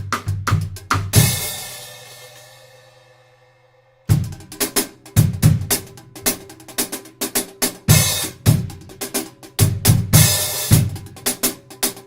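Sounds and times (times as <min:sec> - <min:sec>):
hi-hats: 0:04.1 - 0:12.0.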